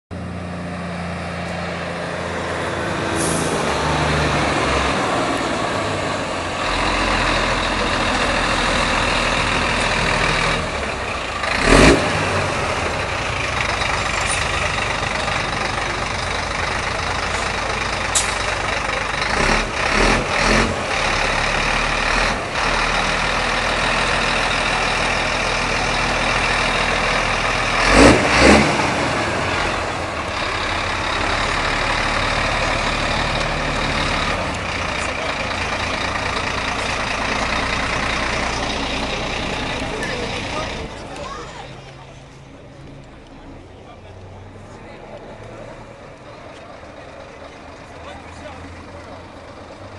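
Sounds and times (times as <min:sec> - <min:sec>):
truck engine rumbling: 0:00.1 - 0:49.9
loud engine bursts: 0:02.2 - 0:41.0.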